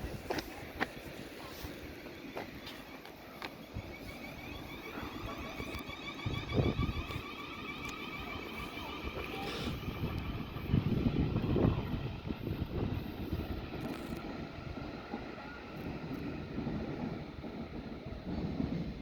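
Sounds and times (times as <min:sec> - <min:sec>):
electric train whine and rumble: 0:00.0 - 0:19.0
wind on microphone: 0:03.7 - 0:07.4, 0:08.3 - 0:19.0.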